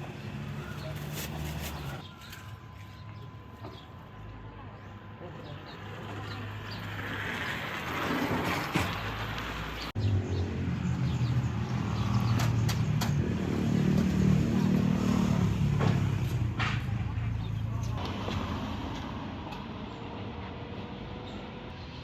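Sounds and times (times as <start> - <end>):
vehicle passing: 5.0 - 22.0
engine running close by: 5.2 - 22.0.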